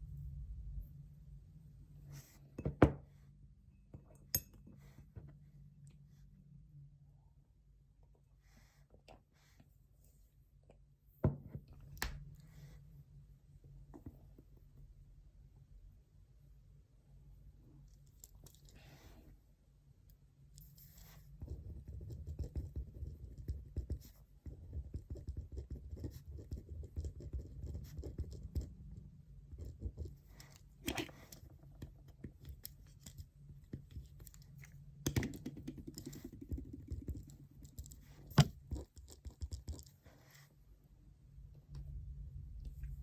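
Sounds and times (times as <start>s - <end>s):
pen scratching on paper: 20.8s - 28.7s.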